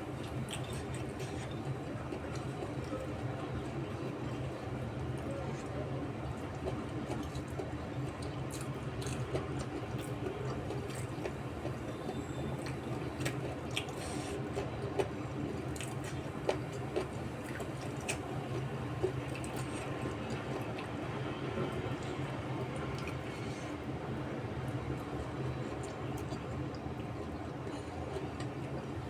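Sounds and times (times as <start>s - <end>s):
person chewing food: 8.2s - 11.8s, 12.6s - 20.9s.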